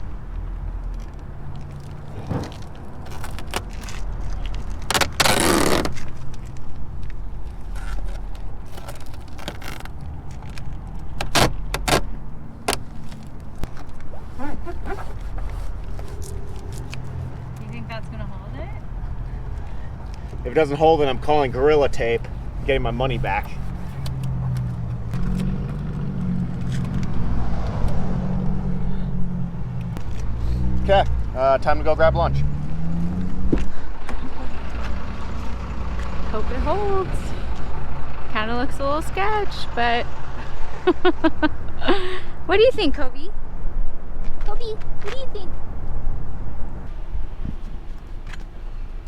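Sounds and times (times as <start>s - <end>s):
car engine hum: 0.0s - 49.0s
tyre and road noise: 0.0s - 49.0s
tape ripping: 2.2s - 6.6s, 7.6s - 17.2s.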